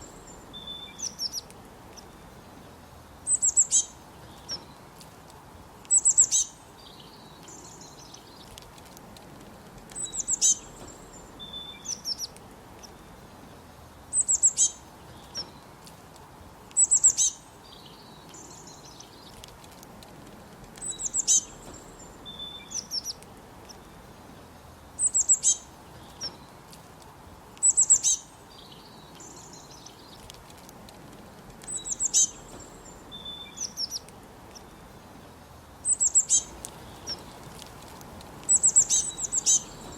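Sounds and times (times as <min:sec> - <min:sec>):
bird song rapid high notes: 0:00.0 - 0:04.8, 0:05.9 - 0:08.5, 0:10.0 - 0:13.2, 0:14.1 - 0:15.7, 0:16.8 - 0:19.3, 0:20.8 - 0:26.6, 0:27.6 - 0:30.2, 0:31.7 - 0:37.4, 0:38.4 - 0:39.9
softer lower bird calls: 0:00.0 - 0:04.8, 0:05.9 - 0:08.5, 0:10.0 - 0:13.3, 0:14.1 - 0:15.7, 0:16.8 - 0:19.4, 0:20.8 - 0:26.6, 0:27.6 - 0:30.2, 0:31.7 - 0:37.5, 0:38.4 - 0:39.9
steady low hiss: 0:00.0 - 0:39.9.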